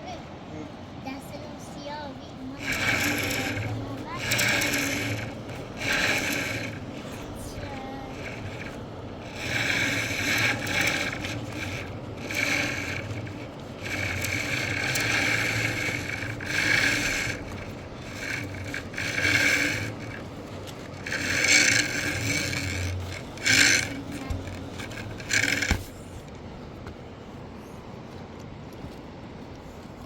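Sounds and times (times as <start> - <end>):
hand tool scraping: 2.5 - 26.3.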